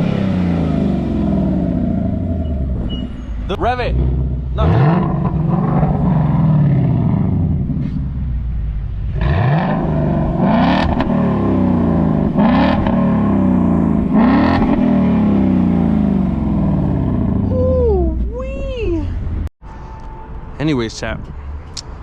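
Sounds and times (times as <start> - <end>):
car engine revving: 0.0 - 17.5.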